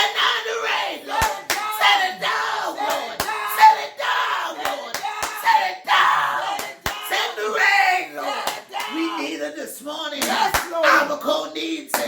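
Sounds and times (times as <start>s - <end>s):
hand claps: 1.2s - 1.6s, 6.6s - 7.0s, 8.4s - 8.9s, 10.2s - 10.8s
people shouting: 10.4s - 11.2s.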